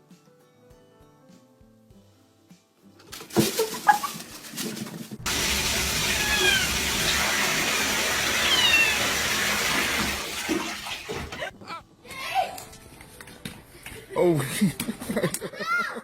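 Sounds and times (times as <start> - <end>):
running water: 3.2 - 11.5
cat meowing: 6.0 - 7.2, 8.2 - 9.3.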